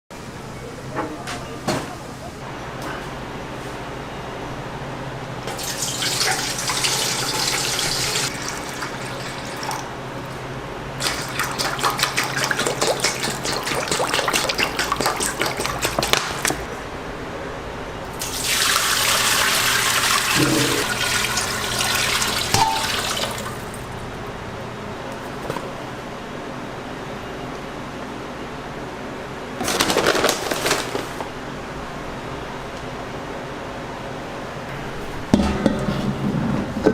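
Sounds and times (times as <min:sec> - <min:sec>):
water running: 0:05.5 - 0:10.3, 0:11.0 - 0:16.6, 0:18.2 - 0:24.0.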